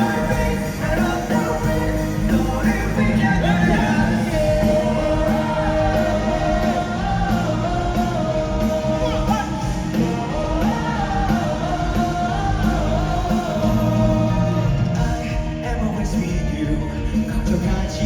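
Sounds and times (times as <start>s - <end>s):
live rock band music: 0.0s - 18.0s.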